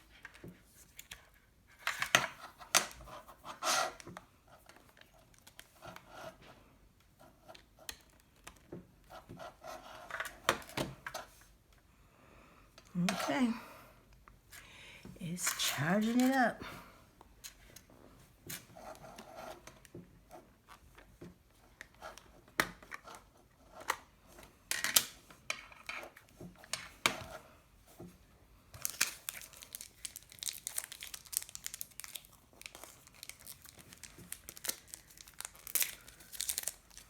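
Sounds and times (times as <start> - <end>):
plastic wrapper tearing and crinkling: 28.8 - 37.0.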